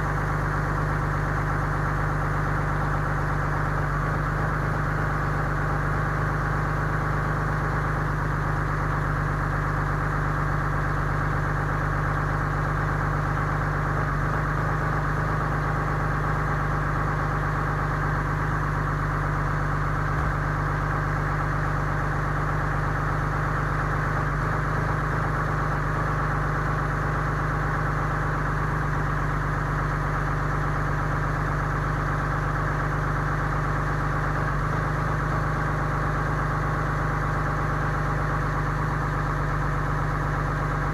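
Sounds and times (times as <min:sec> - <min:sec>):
diesel engine idling: 0:35.2 - 0:40.9.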